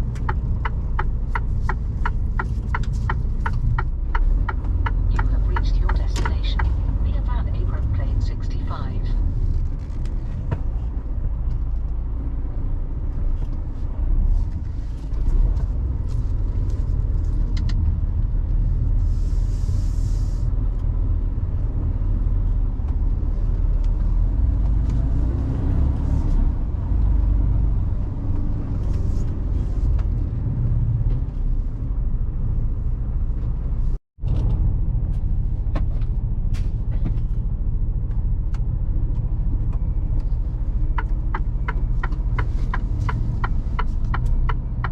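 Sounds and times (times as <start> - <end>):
truck engine and road rumble: 0.0 - 44.9.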